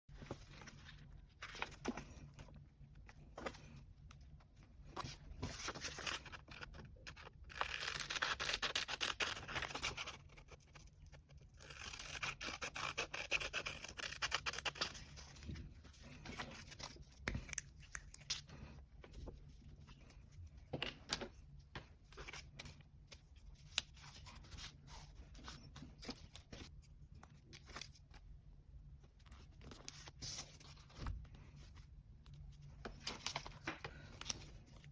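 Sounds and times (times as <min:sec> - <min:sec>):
paper rustling: 0:04.9 - 0:07.2.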